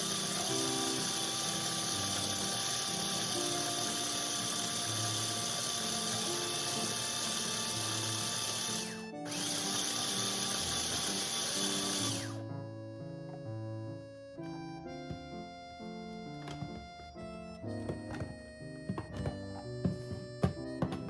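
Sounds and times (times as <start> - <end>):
small electric motor whirring: 0.0 - 12.4
background music: 0.0 - 21.0.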